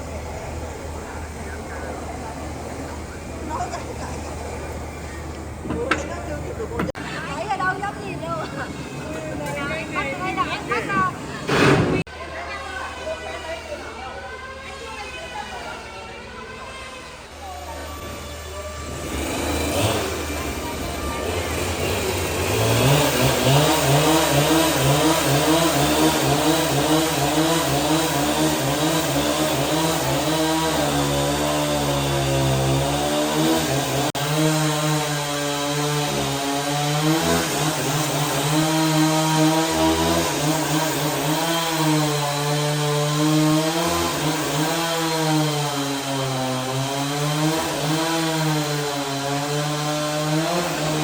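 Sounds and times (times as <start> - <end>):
chainsaw cutting wood: 17.9 - 51.0.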